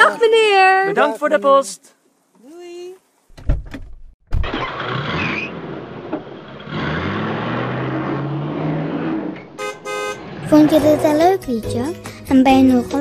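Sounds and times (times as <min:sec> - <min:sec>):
car engine starting and running: 0:04.2 - 0:12.0.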